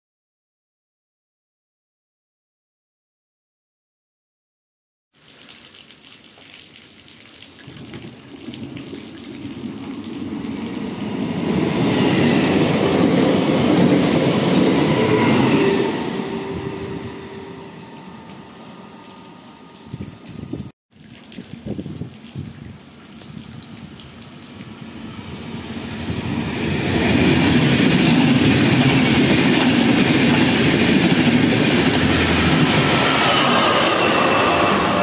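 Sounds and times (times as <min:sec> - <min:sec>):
rain hiss: 0:05.2 - 0:11.5
train passing at speed: 0:09.1 - 0:20.0, 0:24.7 - 0:35.0.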